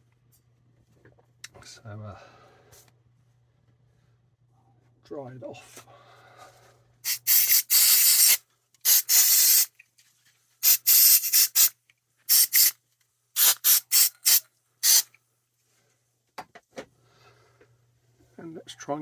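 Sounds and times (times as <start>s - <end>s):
compressed air blasts: 7.1s - 9.7s, 10.6s - 11.7s, 12.3s - 12.7s, 13.4s - 15.1s.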